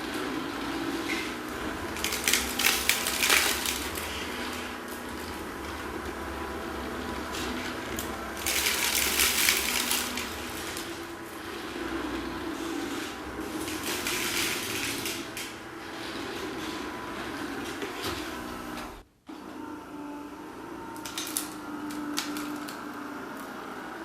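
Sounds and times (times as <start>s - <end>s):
sweeper brush motor humming: 0.0s - 24.0s
debris rattling and clicking: 1.9s - 5.4s, 7.4s - 11.1s, 13.6s - 15.6s.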